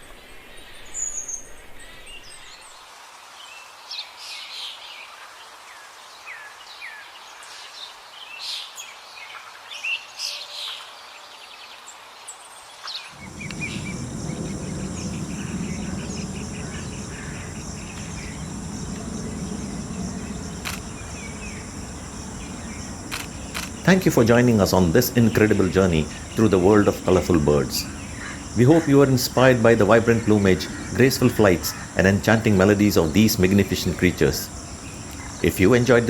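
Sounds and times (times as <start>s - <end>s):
birds chirping and calling: 13.2s - 35.6s
high insect trilling: 13.2s - 36.0s
low rumbling noise: 13.2s - 36.0s.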